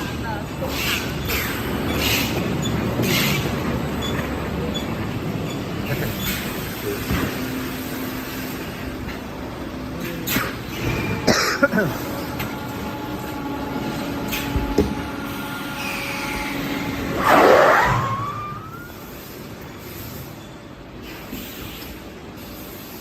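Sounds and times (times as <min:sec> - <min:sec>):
machinery humming: 0:00.0 - 0:20.0
knocks and clanks: 0:13.9 - 0:15.3
loud burst with rising whine: 0:16.0 - 0:19.2.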